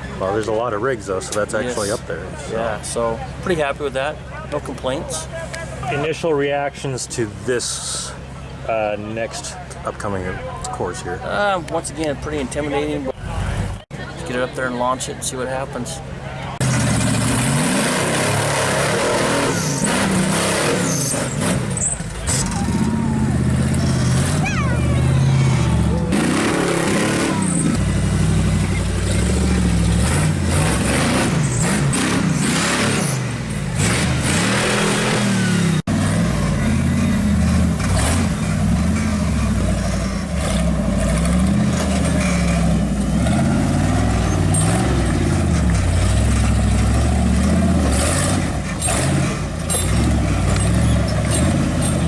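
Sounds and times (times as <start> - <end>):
truck engine revving: 15.5 - 52.0.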